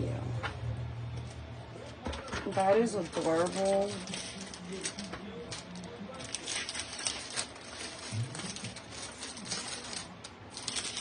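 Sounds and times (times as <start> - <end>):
packaging rustling and crackling: 2.1 - 11.0.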